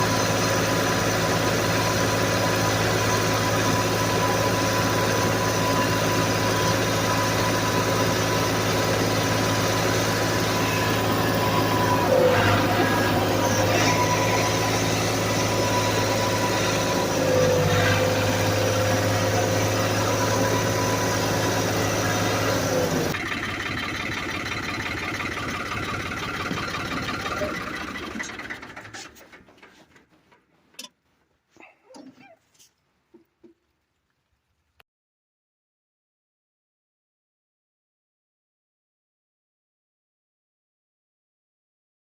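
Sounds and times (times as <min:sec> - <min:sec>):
tractor engine running: 0:00.0 - 0:34.8
whine: 0:09.4 - 0:23.2.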